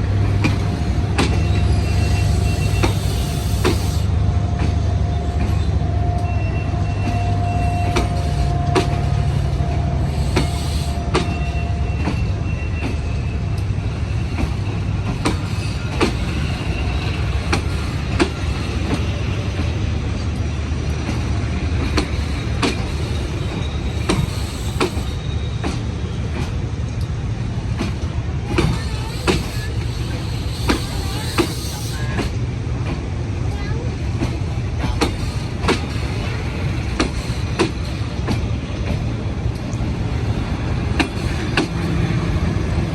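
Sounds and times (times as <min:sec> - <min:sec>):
passenger train rumbling past: 0:00.0 - 0:42.9
train wheel squeal: 0:00.4 - 0:20.2, 0:20.9 - 0:26.8, 0:28.5 - 0:32.4, 0:34.8 - 0:39.0, 0:40.2 - 0:42.2
wheels clicking over rail joints: 0:12.0 - 0:40.0.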